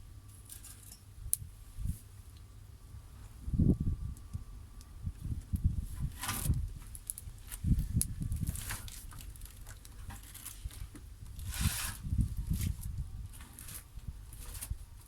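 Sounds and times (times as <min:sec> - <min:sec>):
wood fire crackling: 0:04.1 - 0:14.7.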